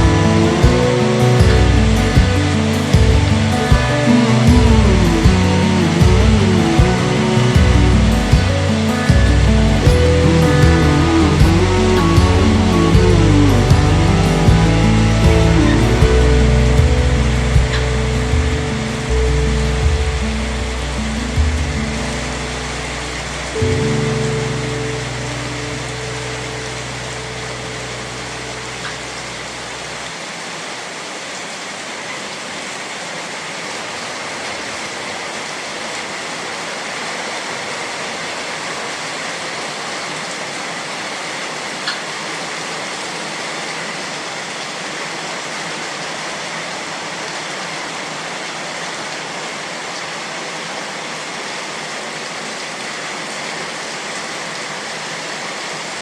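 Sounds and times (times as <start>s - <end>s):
low background music: 0.0s - 30.0s
rain falling: 0.0s - 56.0s.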